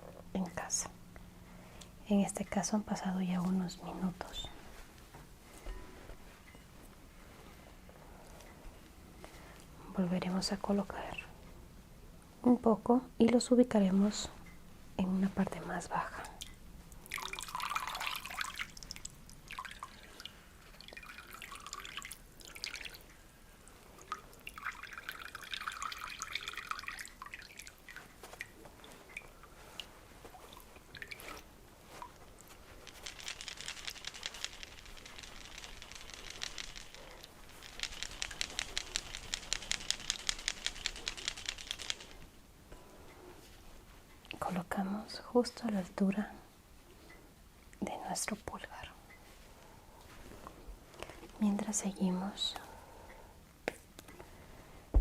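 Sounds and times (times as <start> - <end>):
water dripping and trickling: 16.2 - 42.0.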